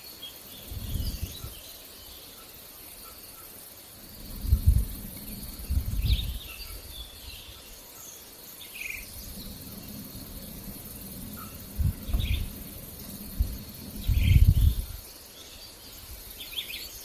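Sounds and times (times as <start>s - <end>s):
birds chirping: 0.0s - 17.0s
insects chirring: 0.0s - 17.0s
low rumbles: 3.9s - 7.5s, 9.0s - 15.1s.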